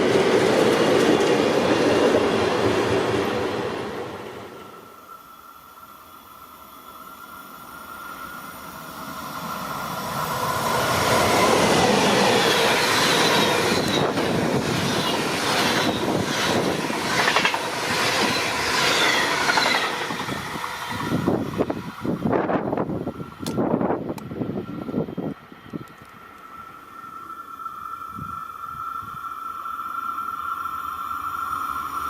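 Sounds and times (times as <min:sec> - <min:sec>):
train passing: 0:00.0 - 0:32.0
train wheels clattering over rail joints: 0:12.1 - 0:21.4.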